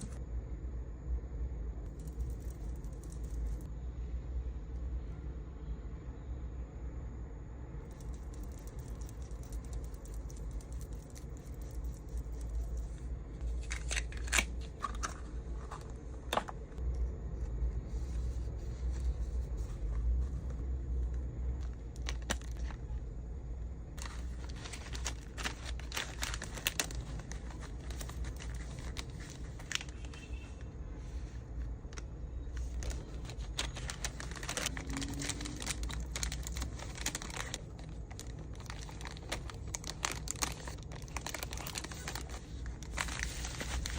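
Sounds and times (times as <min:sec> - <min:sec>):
steady low hum: 0:00.0 - 0:43.9
plastic packaging crinkling: 0:01.9 - 0:03.7, 0:07.9 - 0:15.8, 0:21.6 - 0:22.8, 0:24.0 - 0:30.6, 0:32.5 - 0:43.9
small hard items clinking: 0:24.0 - 0:30.2, 0:32.7 - 0:43.9.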